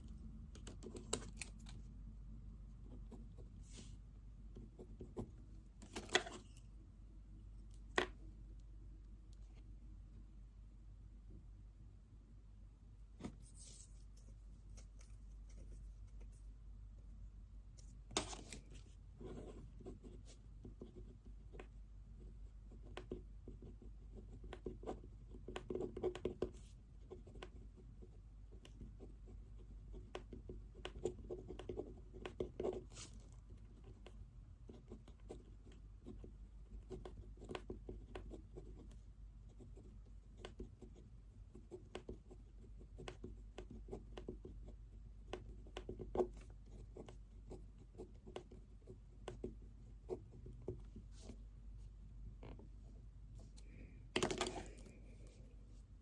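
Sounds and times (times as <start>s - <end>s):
low steady hum: 0.0s - 56.0s
pen scratching on paper: 17.8s - 53.5s.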